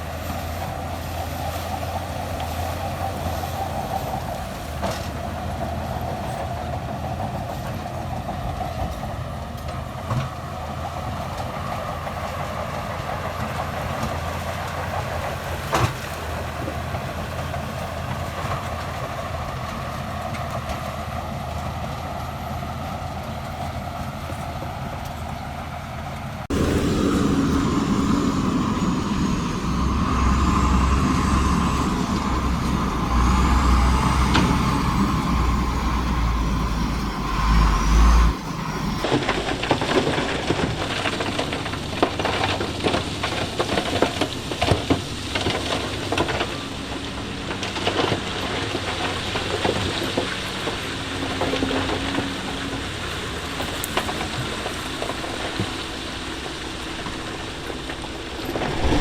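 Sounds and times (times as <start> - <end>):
deep engine running: 0.0 - 49.5, 58.1 - 59.0
diesel construction machinery running: 0.0 - 59.0
faint high whine: 26.5 - 39.0.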